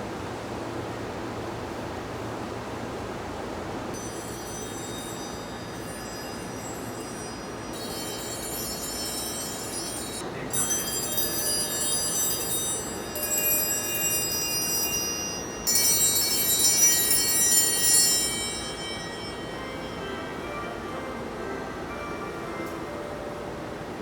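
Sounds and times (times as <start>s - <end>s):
electronic chime melody: 4.0s - 23.0s.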